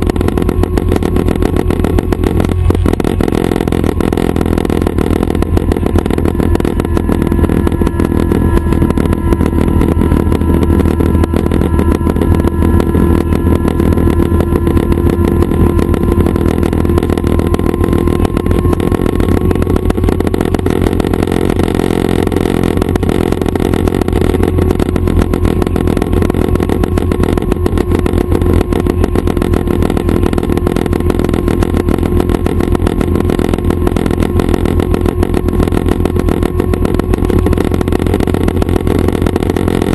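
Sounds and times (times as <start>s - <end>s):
faint whine: 0.0s - 39.9s
helicopter engine and rotors drone: 0.0s - 39.9s.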